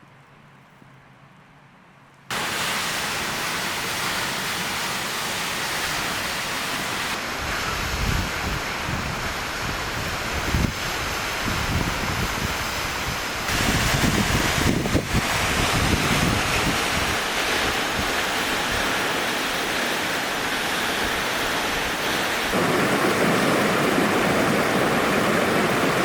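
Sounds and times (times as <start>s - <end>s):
waterfall rushing: 2.3s - 26.0s
wind buffeting microphone: 7.1s - 19.1s, 22.5s - 26.0s.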